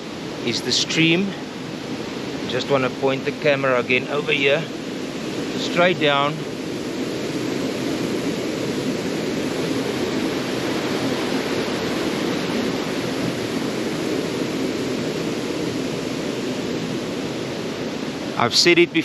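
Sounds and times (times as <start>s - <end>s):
mountain stream rushing: 0.0s - 19.0s.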